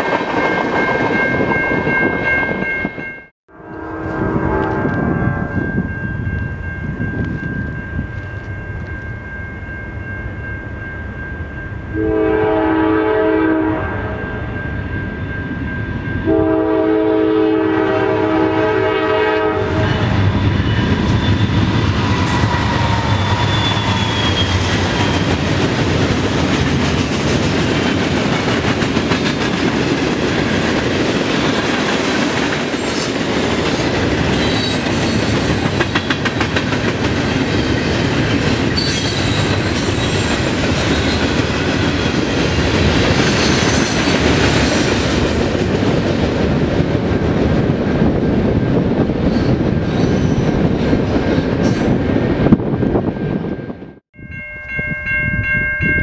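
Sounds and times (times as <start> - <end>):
freight train rumbling past: 0.0 - 56.0
train air horn blasts: 3.5 - 5.5, 11.9 - 14.4, 16.2 - 21.6.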